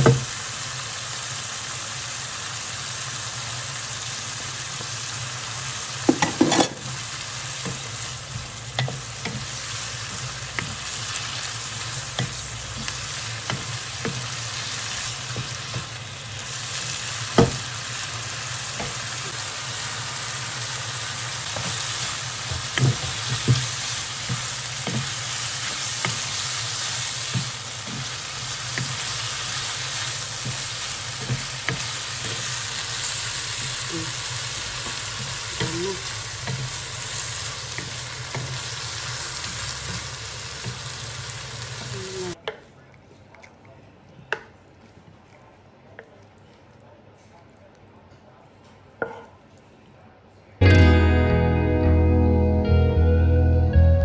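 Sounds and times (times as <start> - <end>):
food sizzling in hot pan: 0.0 - 42.4.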